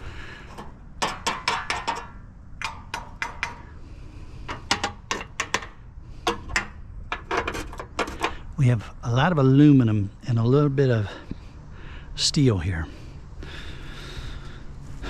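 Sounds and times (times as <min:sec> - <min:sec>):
scrap metal clanking: 0:00.4 - 0:03.8, 0:04.4 - 0:08.5.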